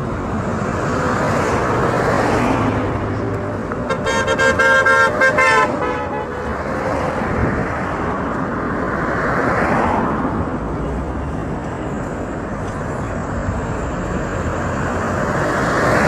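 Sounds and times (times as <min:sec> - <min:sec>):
traffic passing: 0:00.0 - 0:16.0
vehicle horn short toots: 0:03.9 - 0:06.5.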